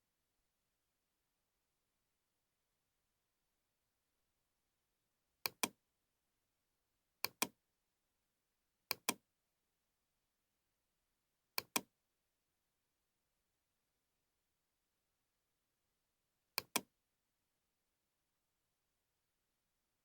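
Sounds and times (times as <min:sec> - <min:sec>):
computer mouse double clicks: 0:16.6 - 0:16.8.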